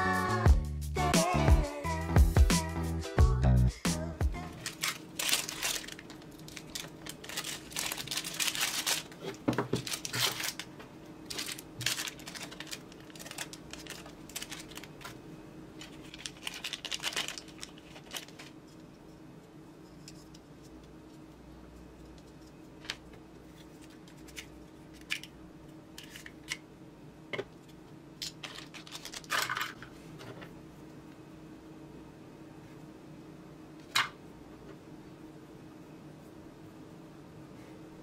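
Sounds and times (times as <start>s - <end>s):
faint steady hum: 0.0s - 38.0s
plastic bags crinkling: 4.5s - 15.2s, 15.8s - 18.6s, 28.2s - 29.8s.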